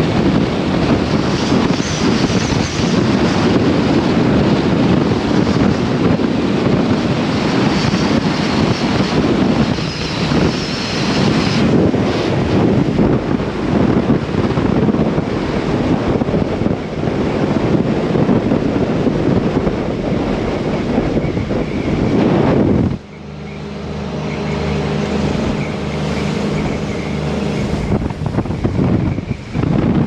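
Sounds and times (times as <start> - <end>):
boat engine drone: 0.0 - 30.0
rushing water: 0.0 - 30.0
wind buffeting microphone: 0.0 - 30.0.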